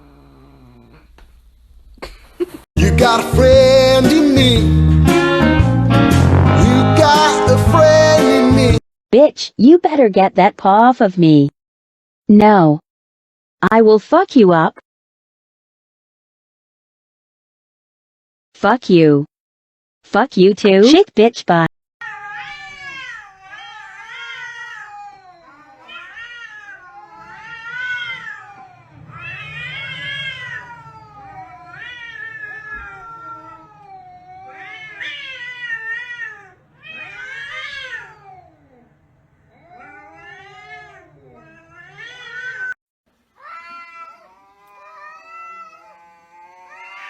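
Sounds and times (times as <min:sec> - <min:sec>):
cats yowling: 0:00.0 - 0:01.0, 0:22.0 - 0:42.8, 0:43.4 - 0:47.0.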